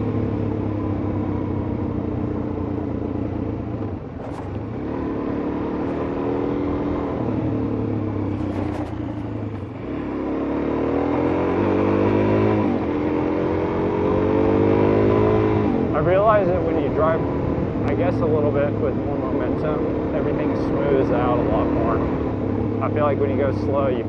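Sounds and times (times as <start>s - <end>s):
motorcycle engine rising in pitch: 0.0s - 23.1s.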